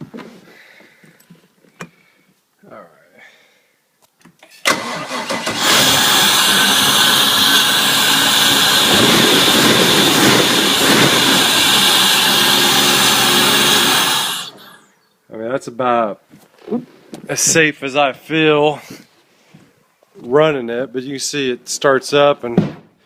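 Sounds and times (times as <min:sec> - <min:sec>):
boat engine cranking: 0:04.7 - 0:14.8
boat engine running: 0:05.6 - 0:14.7.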